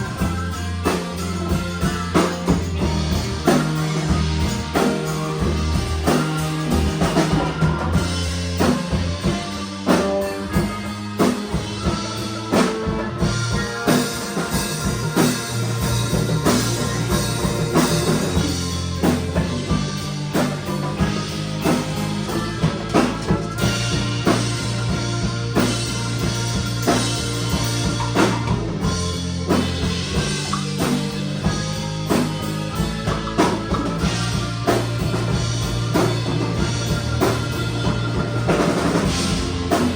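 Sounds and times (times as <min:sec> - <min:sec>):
bass notes: 0:00.0 - 0:39.9
drum kit steady beat: 0:00.0 - 0:39.9
guitar: 0:00.0 - 0:39.9.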